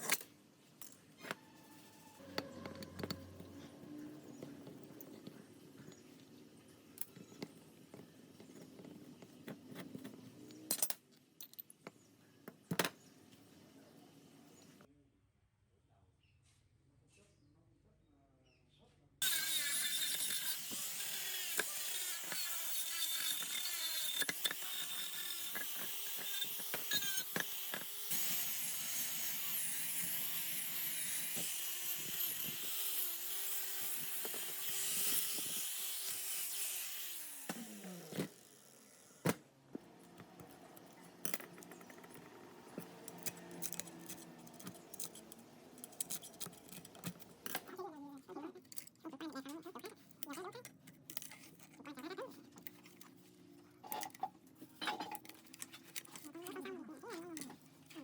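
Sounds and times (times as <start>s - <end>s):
power tool running: 19.2s - 39.4s.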